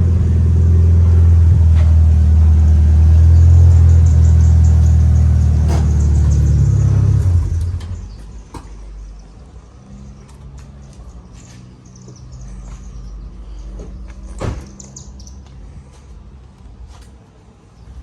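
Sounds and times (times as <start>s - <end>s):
car engine idling: 0.0s - 10.5s.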